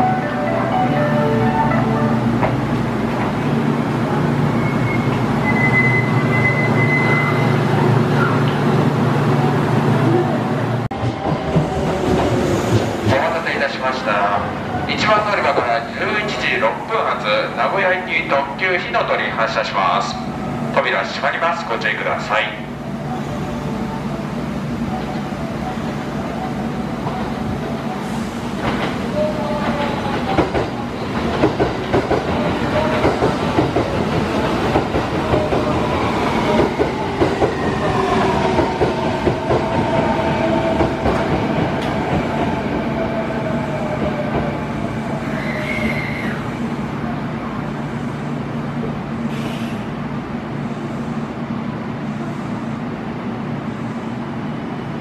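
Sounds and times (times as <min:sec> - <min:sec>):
train low hum: 0:00.0 - 0:55.0.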